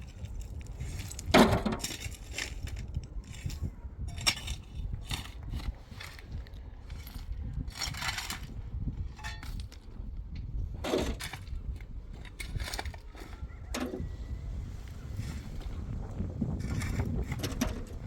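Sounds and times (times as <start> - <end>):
hard objects clinking and scraping: 0.0 - 9.9, 10.8 - 14.0.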